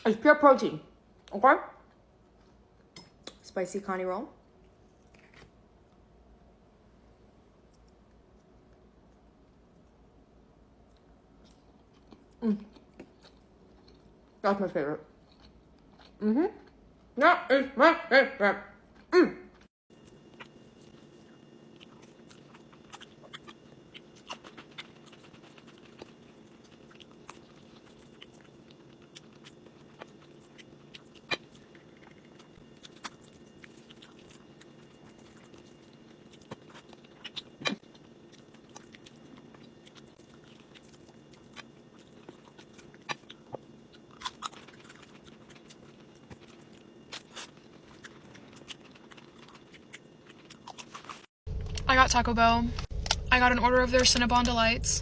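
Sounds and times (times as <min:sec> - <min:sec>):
steady low hum: 0:00.0 - 0:55.0
person chewing food: 0:04.7 - 0:06.5, 0:10.8 - 0:14.4, 0:15.1 - 0:17.1, 0:18.9 - 0:51.3
small crunches: 0:20.0 - 0:51.3.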